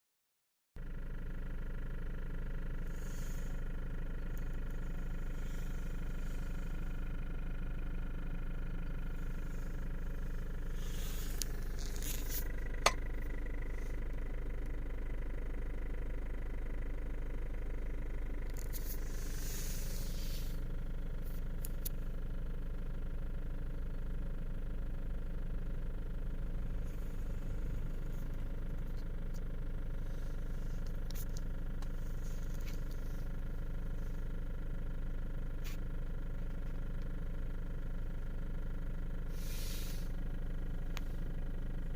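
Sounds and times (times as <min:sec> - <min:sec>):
diesel engine running: 0:00.8 - 0:41.9
brief hisses: 0:39.3 - 0:40.1.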